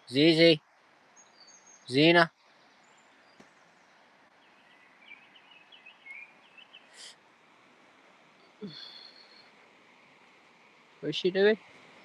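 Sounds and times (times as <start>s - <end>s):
small bird chirping: 1.1s - 7.2s, 8.4s - 9.6s.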